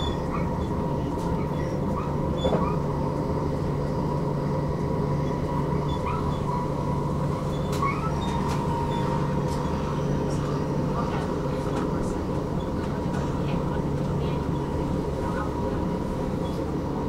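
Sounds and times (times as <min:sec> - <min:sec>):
train rumble: 0:00.0 - 0:17.0
short squeaks: 0:07.4 - 0:10.1.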